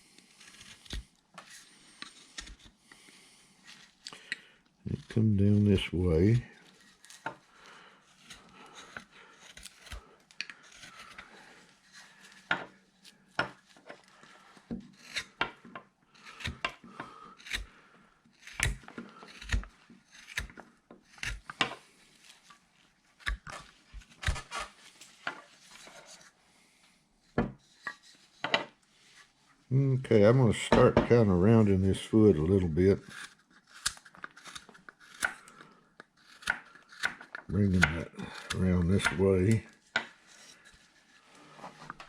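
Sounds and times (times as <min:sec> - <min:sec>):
knife scraping wood: 0:00.0 - 0:29.4, 0:31.1 - 0:42.0
blade clicking on wood: 0:16.2 - 0:17.7, 0:18.4 - 0:21.8, 0:23.2 - 0:24.6, 0:33.0 - 0:40.1.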